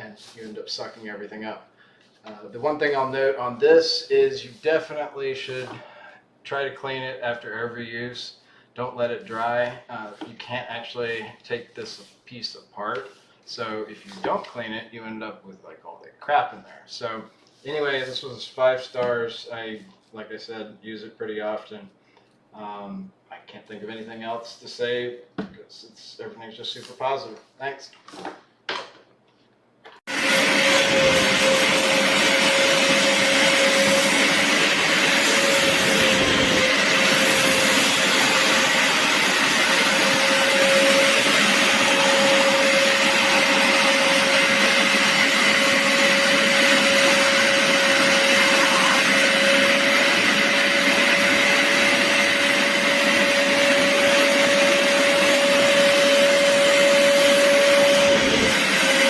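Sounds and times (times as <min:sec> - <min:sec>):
carpet cleaner suction motor whine: 0:30.1 - 0:59.0.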